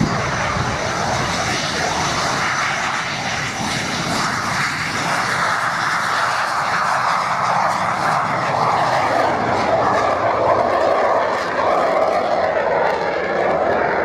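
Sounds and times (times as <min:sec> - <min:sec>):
aircraft engine drone: 0:00.0 - 0:14.0.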